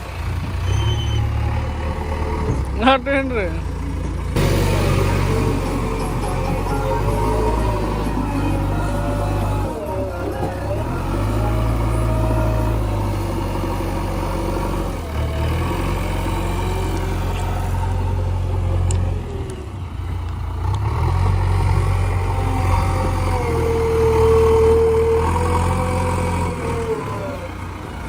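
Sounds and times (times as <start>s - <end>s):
diesel engines under load: 0.0s - 28.0s
steady high whine: 4.4s - 14.6s.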